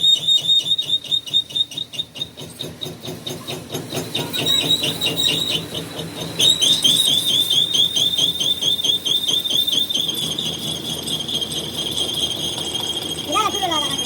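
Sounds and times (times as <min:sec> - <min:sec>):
pulsing high-pitched whine: 0:03.4 - 0:14.0.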